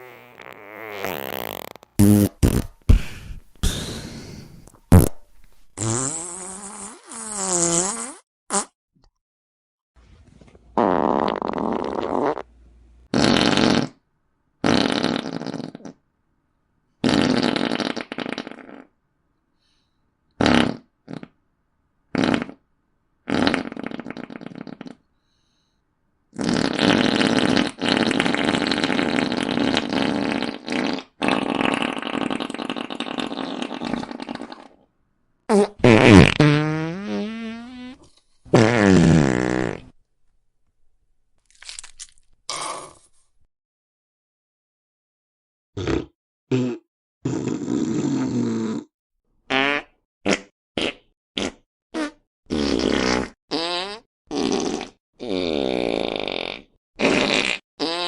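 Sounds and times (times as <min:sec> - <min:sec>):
fart sound effects: 0:00.0 - 0:04.0, 0:04.9 - 0:08.8, 0:10.8 - 0:12.5, 0:13.1 - 0:14.0, 0:14.6 - 0:16.0, 0:17.0 - 0:18.9, 0:20.4 - 0:21.3, 0:22.1 - 0:22.6, 0:23.3 - 0:25.0, 0:26.4 - 0:34.8, 0:35.5 - 0:40.0, 0:45.8 - 0:48.9, 0:49.5 - 0:58.0.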